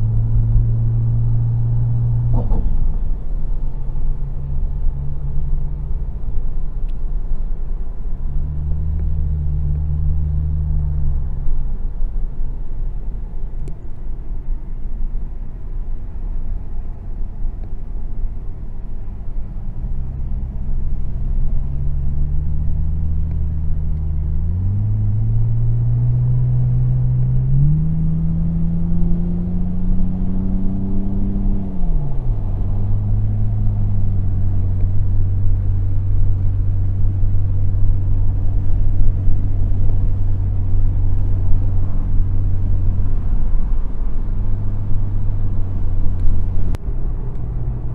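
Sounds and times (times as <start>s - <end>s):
car engine revving: 0.0s - 13.8s, 15.8s - 47.9s.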